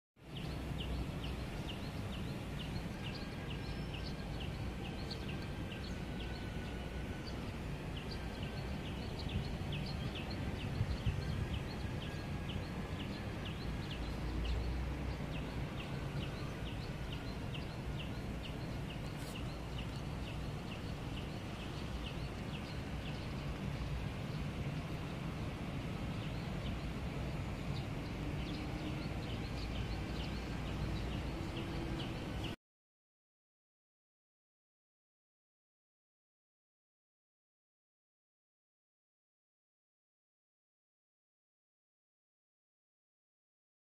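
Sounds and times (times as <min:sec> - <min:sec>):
bird chirping: 0:00.3 - 0:24.5, 0:26.2 - 0:32.6
steady low rumble: 0:00.4 - 0:32.5.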